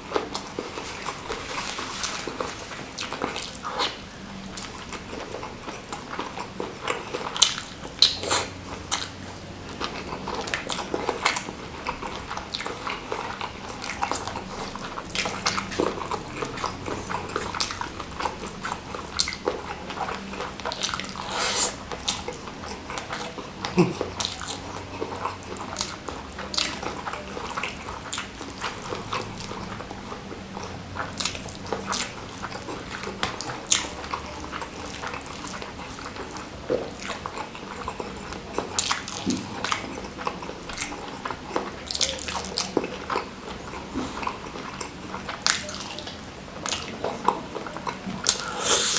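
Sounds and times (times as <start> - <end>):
wet chewing and lip smacks: 0.0 - 48.9.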